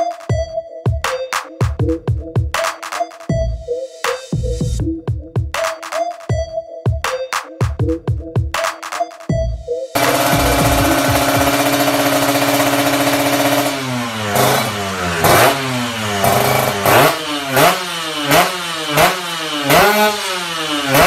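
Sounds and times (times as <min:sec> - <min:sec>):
two-stroke motorcycle engine revving: 0:10.0 - 0:21.0.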